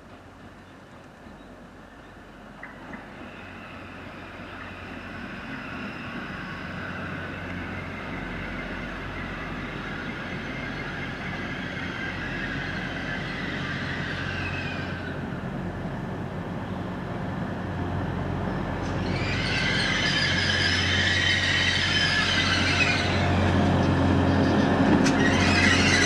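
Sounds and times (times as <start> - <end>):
train engine hum: 0.0 - 26.0
high-pitched squealing tones: 18.9 - 23.5, 24.3 - 26.0.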